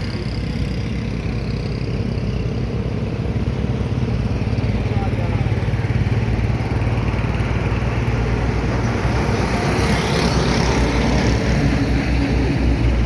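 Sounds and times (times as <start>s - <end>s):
passing vehicle engines: 0.0s - 13.0s
vehicle passing close: 0.0s - 13.0s.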